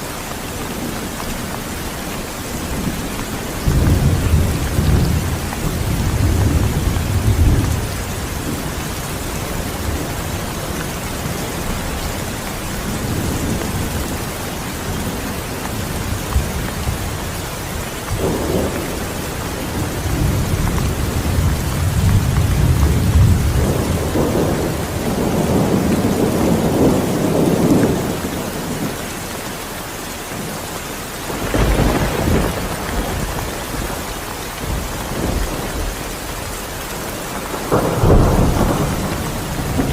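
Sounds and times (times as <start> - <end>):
steady rain falling: 0.0 - 39.9
thunder rolling: 2.7 - 12.0, 15.8 - 29.0, 31.3 - 39.9.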